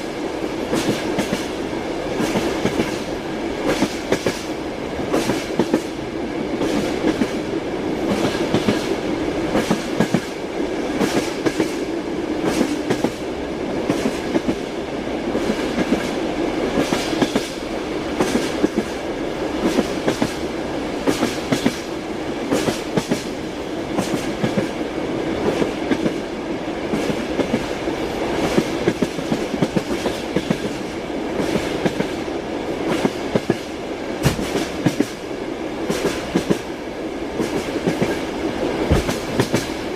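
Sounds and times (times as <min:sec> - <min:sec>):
train wheels clattering: 0:00.7 - 0:01.6, 0:02.2 - 0:04.5, 0:08.0 - 0:13.2, 0:15.4 - 0:17.6, 0:18.2 - 0:19.0, 0:19.6 - 0:20.4, 0:21.0 - 0:21.9, 0:22.5 - 0:23.4, 0:28.4 - 0:32.2, 0:32.9 - 0:35.2, 0:37.4 - 0:39.9.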